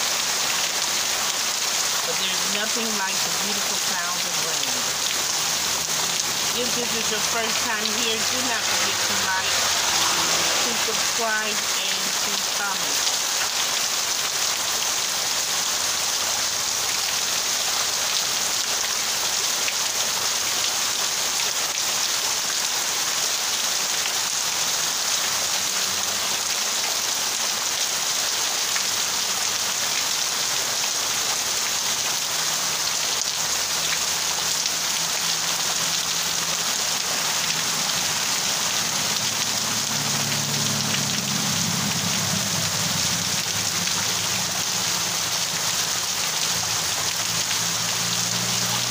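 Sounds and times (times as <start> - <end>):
heavy rain: 0.0 - 48.9
water streaming off roof: 0.0 - 48.9.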